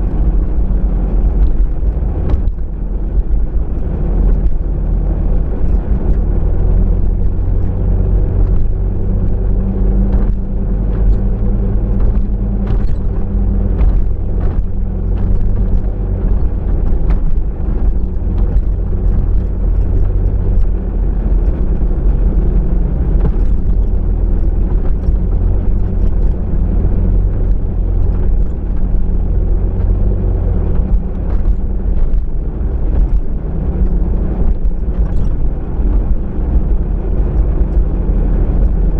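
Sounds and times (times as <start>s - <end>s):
car engine and tyres rumbling: 0.0s - 38.9s.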